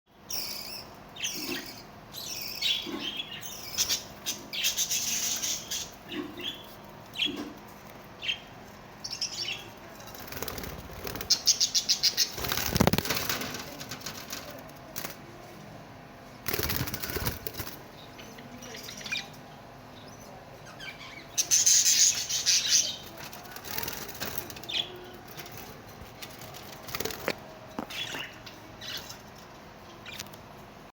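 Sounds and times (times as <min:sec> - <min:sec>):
small birds chirping: 0:00.1 - 0:15.3, 0:16.2 - 0:30.5
wings flapping: 0:10.1 - 0:15.2, 0:16.4 - 0:17.9, 0:23.1 - 0:27.4.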